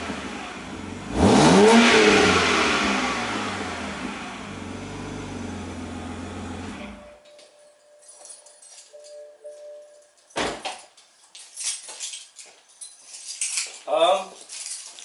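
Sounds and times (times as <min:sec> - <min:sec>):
car engine blipped then idling: 0:00.0 - 0:07.2.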